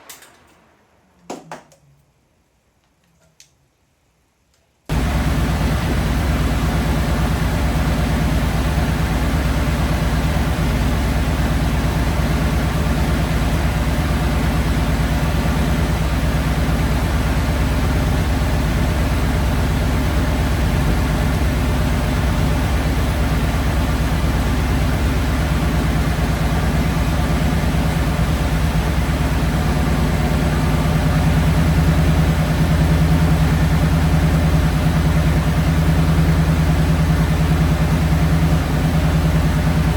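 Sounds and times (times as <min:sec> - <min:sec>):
car engine idling: 0:04.9 - 0:39.9.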